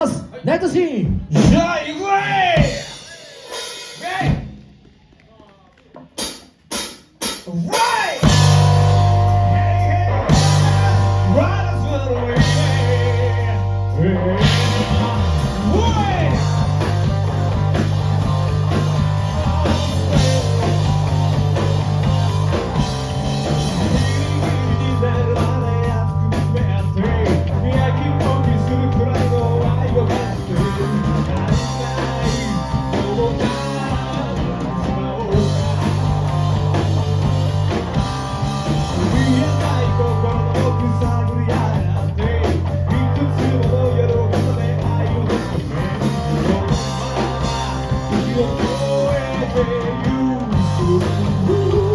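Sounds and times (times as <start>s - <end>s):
drum kit: 1.0s - 5.1s, 6.0s - 51.9s
person singing: 7.5s - 36.8s, 38.7s - 51.9s
bass guitar: 8.2s - 51.9s
electric guitar: 8.2s - 51.9s.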